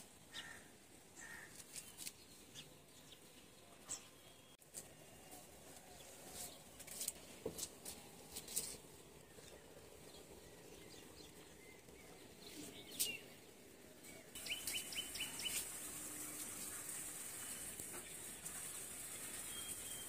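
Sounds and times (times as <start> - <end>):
faint steady hiss: 4.6 - 20.0
small birds chirping: 8.4 - 15.8.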